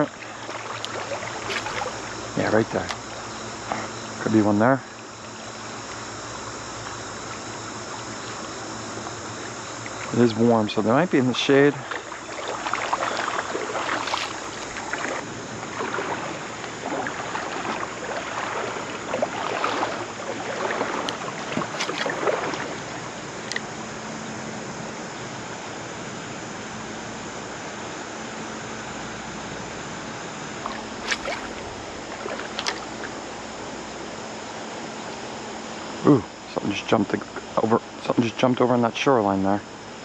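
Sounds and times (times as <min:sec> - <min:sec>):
water sloshing and splashing: 0:00.0 - 0:23.7, 0:30.5 - 0:34.2
rushing river current: 0:00.0 - 0:24.0, 0:29.4 - 0:34.8.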